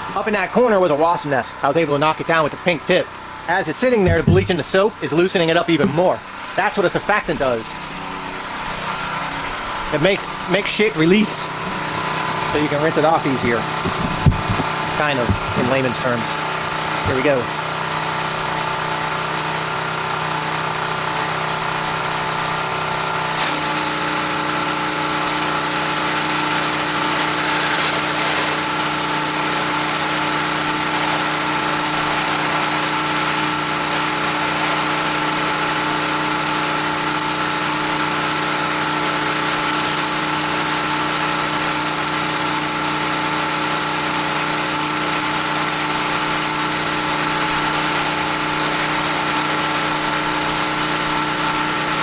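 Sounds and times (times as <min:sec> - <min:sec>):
pressure washer engine running: 0:00.0 - 0:52.0
high-pressure water spray: 0:17.9 - 0:52.0.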